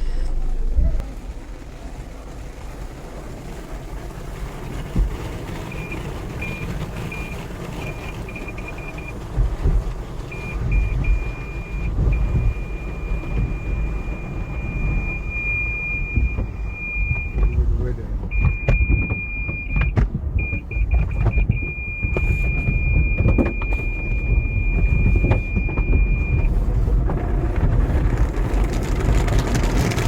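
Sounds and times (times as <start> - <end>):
low vehicle rumble: 0.0 - 30.0
parking sensor beeps: 5.6 - 17.6, 18.3 - 26.6.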